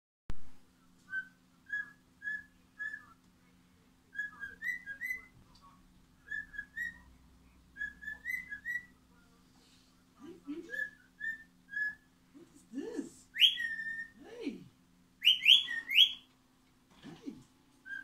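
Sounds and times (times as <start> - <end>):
pet bird whistling chirps: 1.1 - 3.2, 4.1 - 5.3, 6.2 - 7.1, 7.8 - 9.0, 10.7 - 12.1, 13.4 - 14.2, 15.2 - 16.3.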